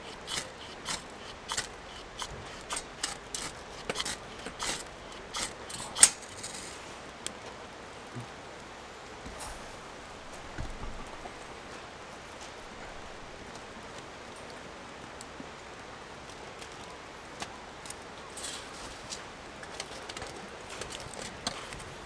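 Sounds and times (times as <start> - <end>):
fire crackles and pops: 0.0 - 8.0
campfire hissing: 0.0 - 22.0.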